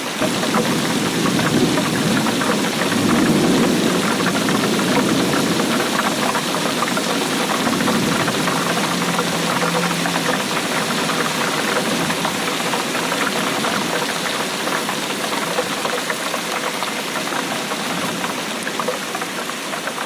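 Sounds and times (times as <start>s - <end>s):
rain pattering: 0.0s - 20.0s.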